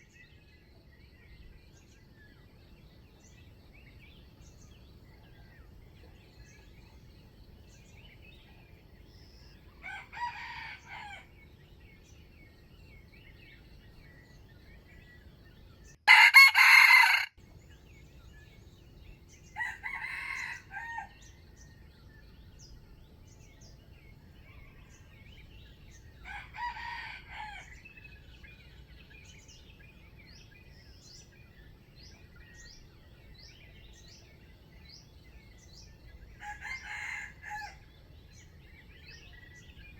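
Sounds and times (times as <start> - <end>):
small birds chirping: 0.0 - 39.9
roosters crowing: 9.8 - 11.4, 16.1 - 17.4, 19.5 - 21.5, 26.0 - 28.0, 36.3 - 37.9.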